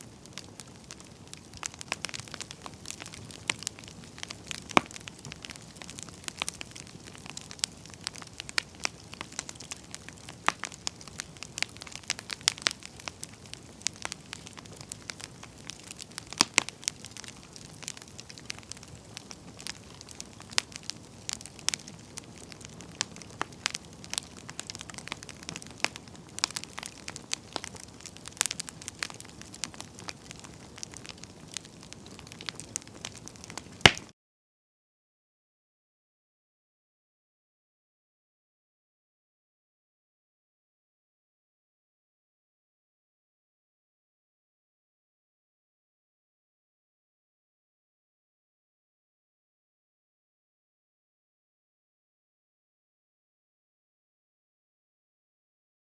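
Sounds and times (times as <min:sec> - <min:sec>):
firewood crackling and popping: 0:00.0 - 0:34.1
soft hiss of flames: 0:00.0 - 0:34.1.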